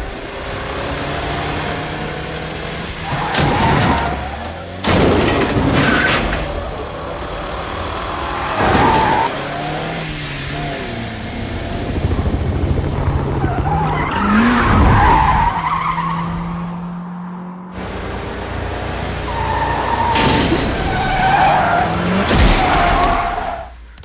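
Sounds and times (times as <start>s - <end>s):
car engines revving: 0.0s - 24.0s
crashing impacts: 3.1s - 7.1s, 20.0s - 24.0s
tyres squealing: 19.1s - 23.7s.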